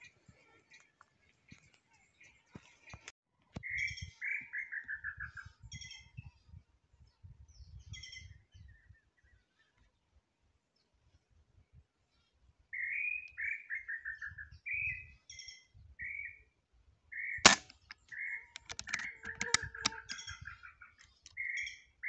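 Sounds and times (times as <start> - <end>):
wild birds calling: 17.1 - 22.0
clicks: 18.6 - 20.2.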